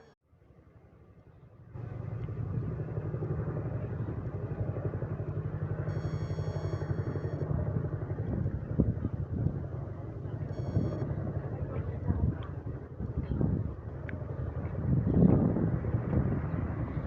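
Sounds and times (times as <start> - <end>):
thin high whine: 5.9 - 7.5, 10.4 - 11.1.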